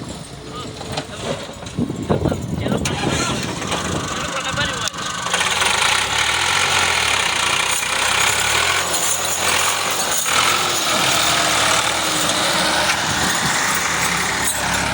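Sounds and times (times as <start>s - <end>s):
excavator diesel engine running: 0.0s - 14.9s
metallic rattling: 1.0s - 14.9s
sharp metal clanks: 7.4s - 14.9s.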